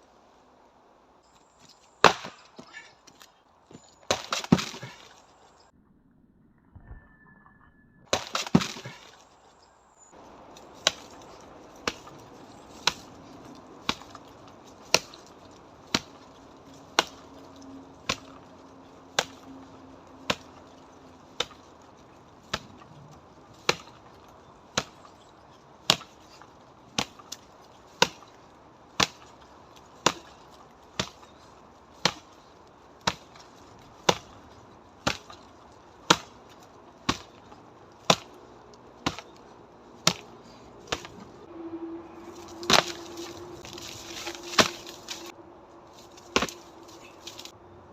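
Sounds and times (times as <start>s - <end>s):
strikes knocking on tree trunk: 35.0s - 38.4s, 46.2s - 47.5s.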